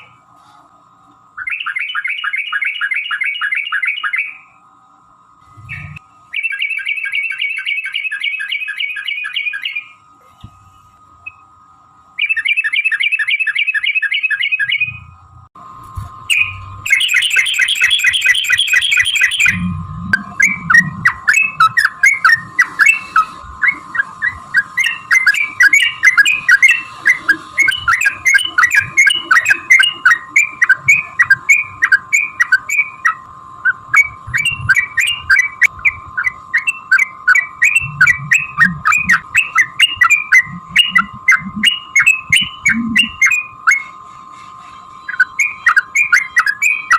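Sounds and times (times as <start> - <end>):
steady high hum: 0.0 - 46.9
bird bubbling trills: 16.3 - 43.8
bird chattering notes: 16.3 - 43.9.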